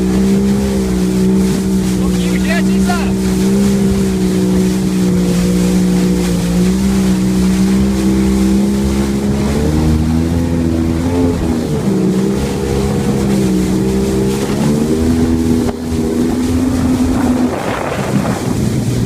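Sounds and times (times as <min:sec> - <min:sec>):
jet ski engine droning: 0:00.0 - 0:19.0
wind: 0:00.0 - 0:19.0.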